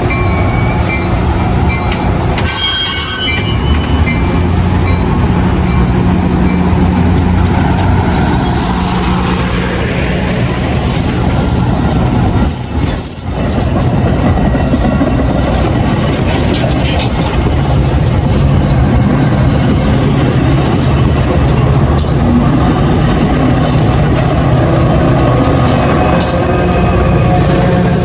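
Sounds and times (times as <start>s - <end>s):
train running low drone: 0.0s - 28.0s
train wheel squeal: 1.7s - 4.5s.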